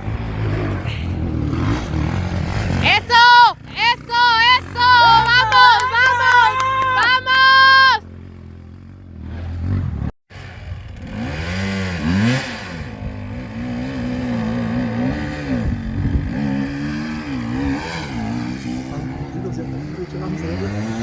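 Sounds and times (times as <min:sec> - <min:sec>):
motorcycle engine revving unevenly: 0:00.0 - 0:03.0, 0:08.0 - 0:21.0.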